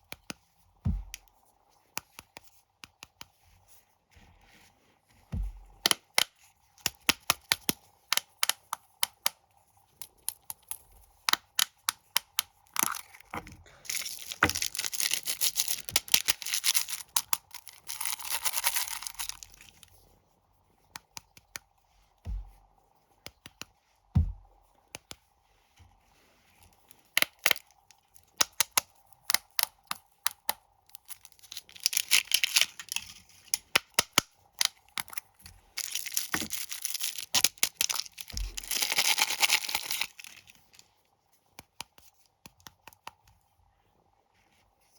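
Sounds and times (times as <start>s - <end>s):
plastic wrappers crinkling: 12.6s - 19.9s, 30.9s - 33.7s, 34.6s - 40.8s
soft thumps of packets: 13.3s - 17.0s, 22.3s - 22.6s.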